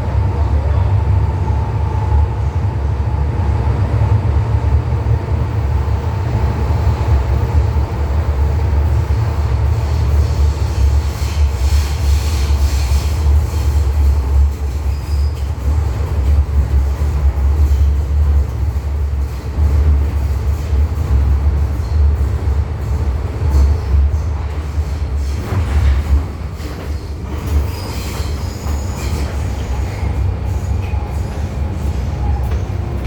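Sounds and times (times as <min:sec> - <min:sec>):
train rumbling on rails: 0:00.0 - 0:33.0
clicky rail noise: 0:08.4 - 0:33.0.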